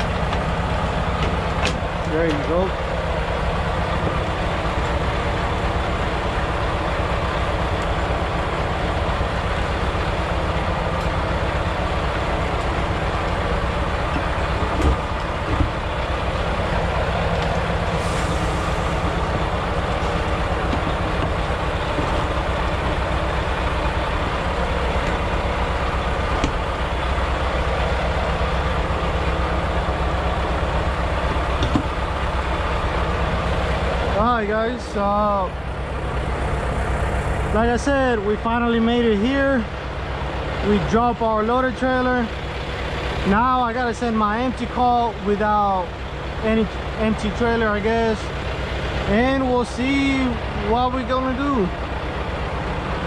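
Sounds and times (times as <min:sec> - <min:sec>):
truck diesel engine running: 0:00.0 - 0:53.0
brief hiss: 0:18.0 - 0:19.0.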